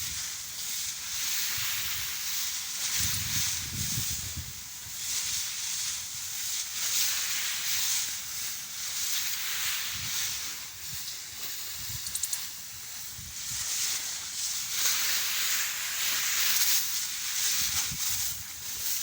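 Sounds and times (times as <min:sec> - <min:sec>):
crop sprayer hissing: 0:00.0 - 0:19.0
quick ticks: 0:12.0 - 0:12.5.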